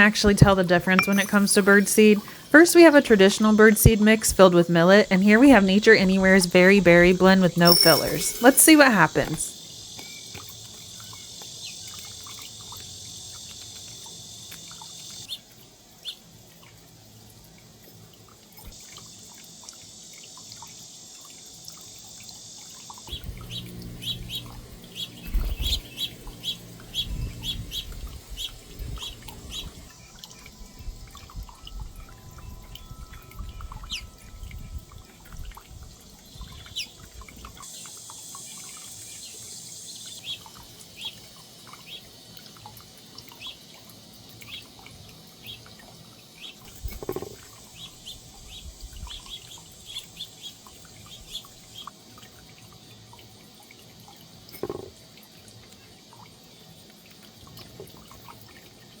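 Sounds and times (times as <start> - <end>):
small birds chirping: 23.1 - 30.5
wind rumble on microphone: 26.8 - 29.9.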